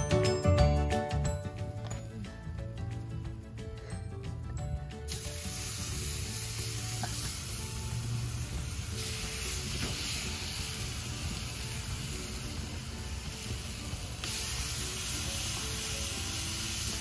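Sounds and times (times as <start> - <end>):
background music: 0.0 - 17.0
food sizzling on a griddle: 5.1 - 17.0.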